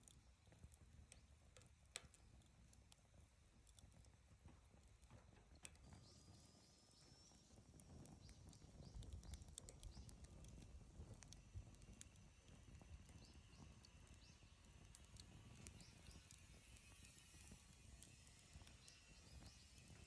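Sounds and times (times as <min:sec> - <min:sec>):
low rumble of burning: 0:00.0 - 0:20.0
bonfire crackling: 0:07.4 - 0:20.0
sharp pops and snaps: 0:07.8 - 0:19.9.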